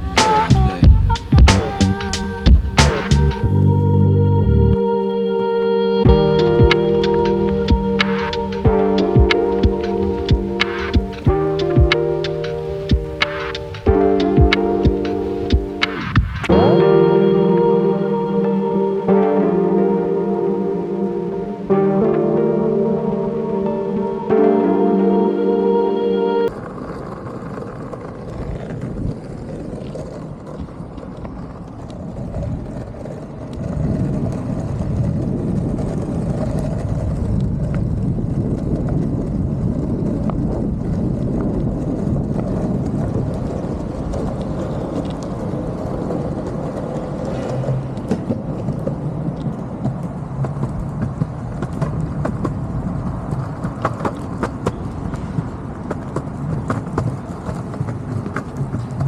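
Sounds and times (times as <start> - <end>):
longboard wheels rolling on pavement: 6.1 - 16.5, 26.5 - 59.0.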